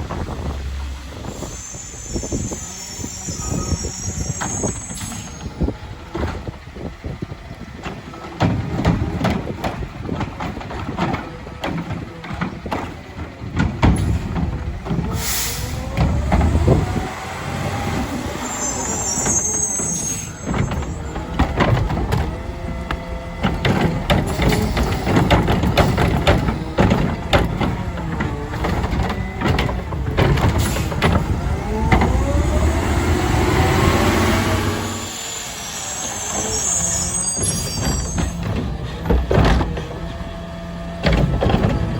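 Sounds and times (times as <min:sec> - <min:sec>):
garbage truck engine running: 0:00.0 - 0:41.9
air brake hisses: 0:01.2 - 0:05.4, 0:15.1 - 0:15.9, 0:34.4 - 0:38.4
knocks and clatter: 0:04.9 - 0:17.1, 0:20.0 - 0:35.0, 0:36.3 - 0:41.9
rising whine: 0:31.2 - 0:38.3.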